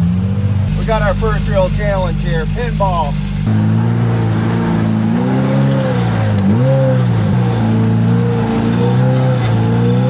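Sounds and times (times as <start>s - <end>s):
utility vehicle engine running: 0.0s - 3.6s.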